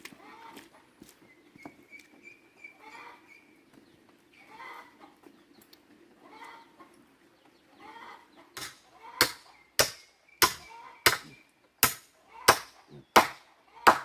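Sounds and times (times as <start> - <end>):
chickens clucking: 0.0 - 9.8, 10.4 - 14.0
blade chopping wood: 8.6 - 14.0.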